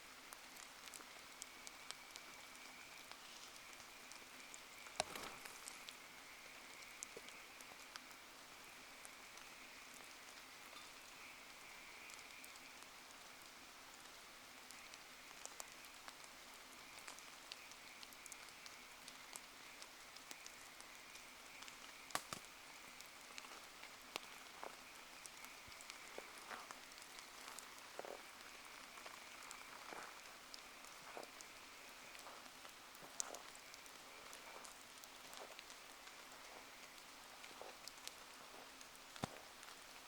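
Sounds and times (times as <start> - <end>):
faint rain falling: 0.0 - 40.0
campfire ticks and pops: 0.1 - 40.0.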